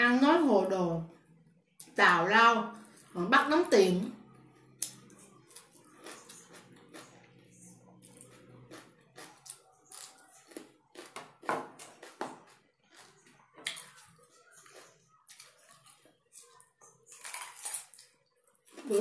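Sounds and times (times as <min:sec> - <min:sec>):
crunching raw vegetables: 0:04.2 - 0:19.0.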